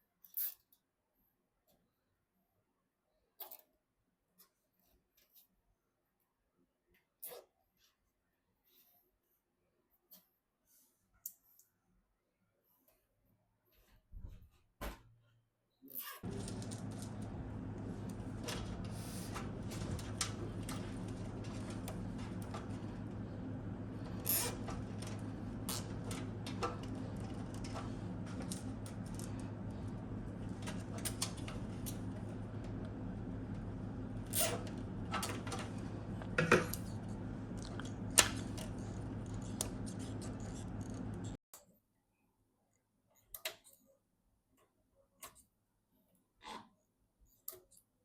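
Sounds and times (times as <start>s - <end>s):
computer parts clicking and rustling: 16.2s - 41.4s
steady low hum: 16.2s - 41.4s.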